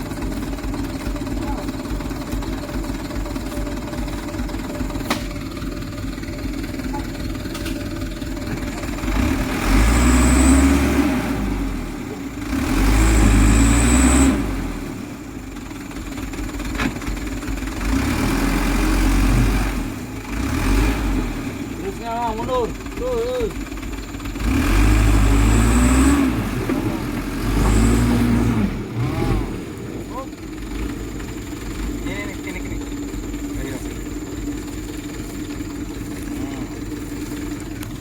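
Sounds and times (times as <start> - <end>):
diesel truck engine revving hard: 8.5 - 15.2, 17.8 - 23.6, 24.3 - 32.5.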